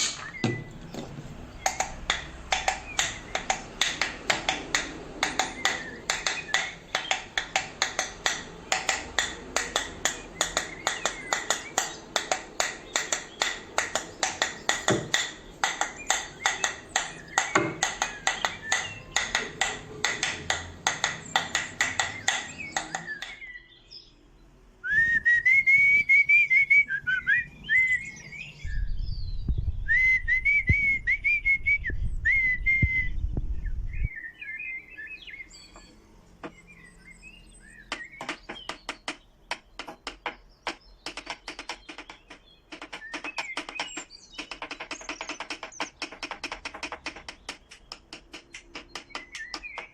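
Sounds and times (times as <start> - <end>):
sharp clicks: 0.0 - 23.5, 37.8 - 49.9
wavering whistled tone: 24.8 - 29.0, 29.7 - 33.2
low rumble: 28.6 - 34.2.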